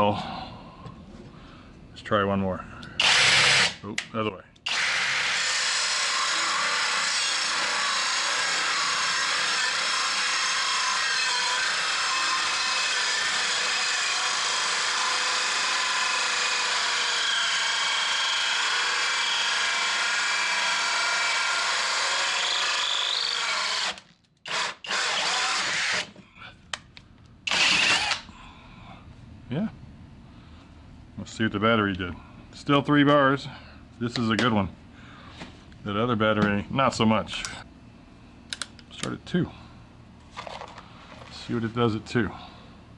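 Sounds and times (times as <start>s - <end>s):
drill cutting into wood: 3.0s - 3.8s, 4.7s - 26.1s, 27.5s - 28.2s.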